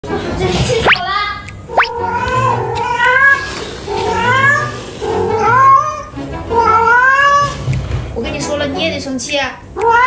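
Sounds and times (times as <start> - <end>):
cat meowing loudly: 1.7 - 7.6, 9.8 - 10.0.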